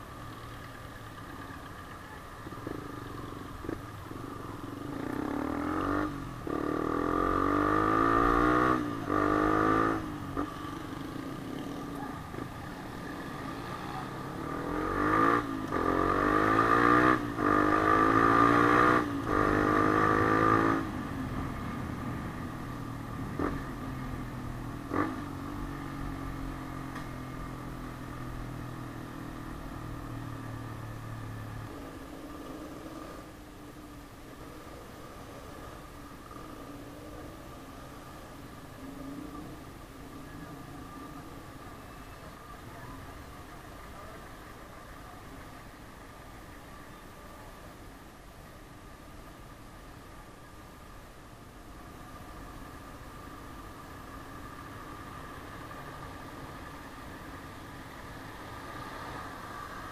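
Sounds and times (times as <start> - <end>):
motorcycle engine accelerating: 2.4 - 33.4.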